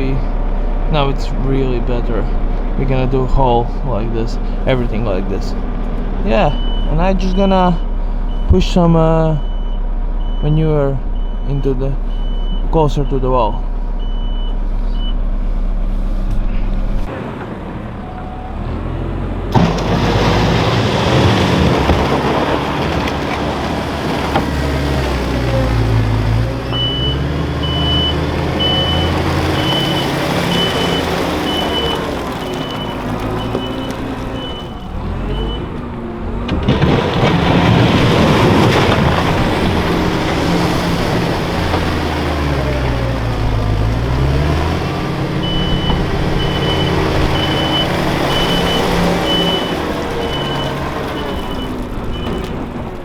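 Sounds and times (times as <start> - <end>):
loader diesel engine revving: 0.0 - 53.0
reversing beeper: 6.4 - 15.7, 26.2 - 35.7, 45.4 - 52.6.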